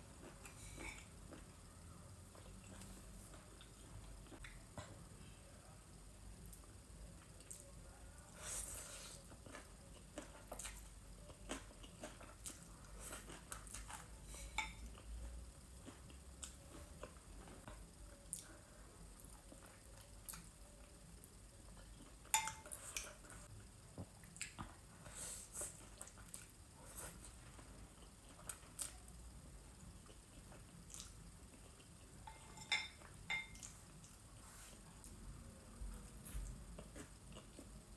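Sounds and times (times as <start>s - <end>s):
soft chewing: 0.0s - 37.9s.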